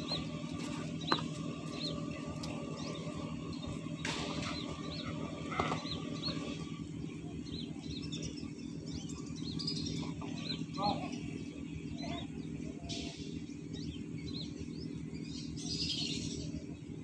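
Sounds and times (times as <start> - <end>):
small bird chirping: 0.0 - 16.8
steady low rumble: 0.0 - 17.0.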